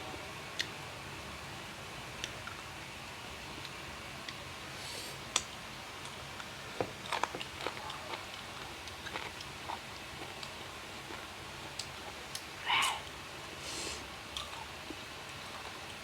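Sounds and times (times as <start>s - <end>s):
crunchy chewing: 6.0s - 12.5s.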